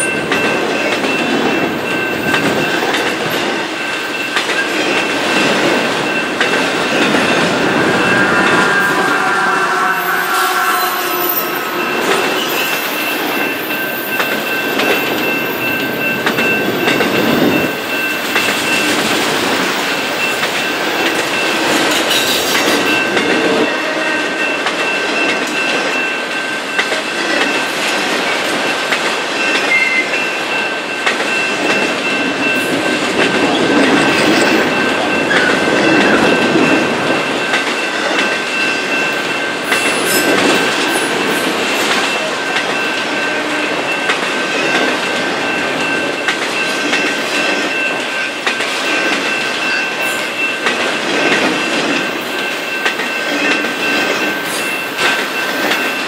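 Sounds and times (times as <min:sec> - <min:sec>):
freight cars rumbling on rails: 0:00.0 - 0:56.0
thin high whine: 0:06.9 - 0:14.0.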